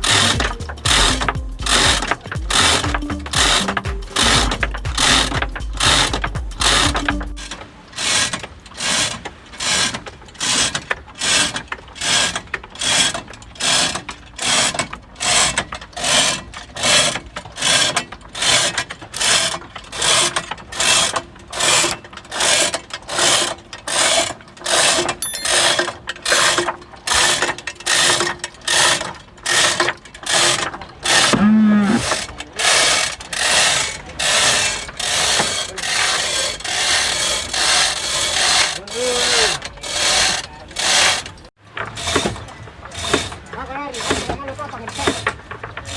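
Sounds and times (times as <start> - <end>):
short pitched sound: 0.0 - 7.8
ratchet winch clicking: 0.0 - 31.4, 32.0 - 42.3.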